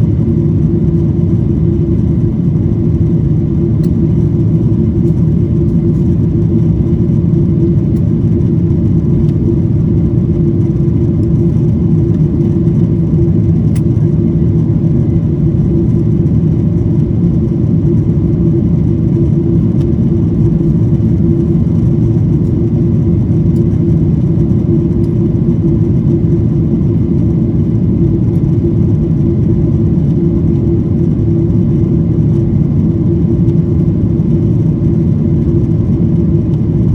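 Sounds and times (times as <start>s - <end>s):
airplane engine drone: 0.0s - 36.9s.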